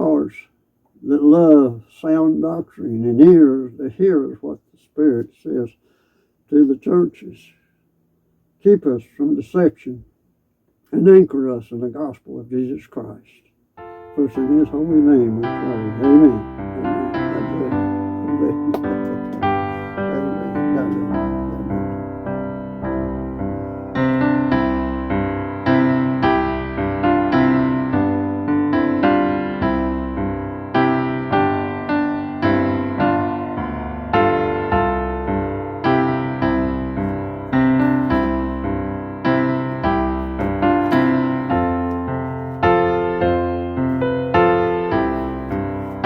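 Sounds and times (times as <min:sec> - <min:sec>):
slow piano chords: 0:13.8 - 0:46.0.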